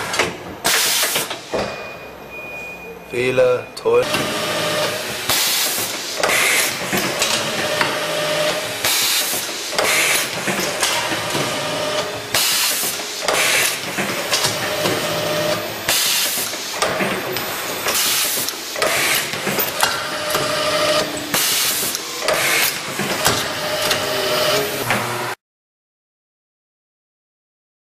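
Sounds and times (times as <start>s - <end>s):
pneumatic air hisses: 0.6s - 1.6s, 5.2s - 6.8s, 8.8s - 10.4s, 12.3s - 13.8s, 15.9s - 17.0s, 17.8s - 19.7s, 21.3s - 22.9s.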